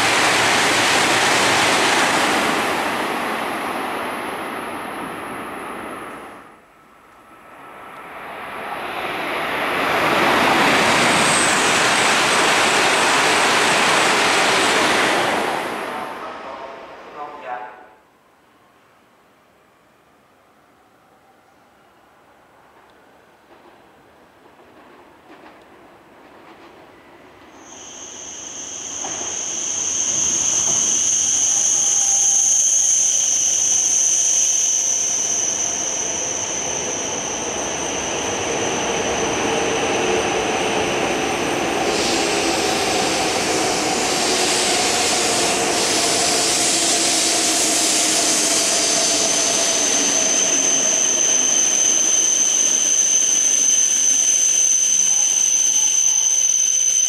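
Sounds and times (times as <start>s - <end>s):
train rushing: 0.0s - 17.6s, 22.5s - 57.0s
train whine falling in pitch: 26.9s - 57.0s.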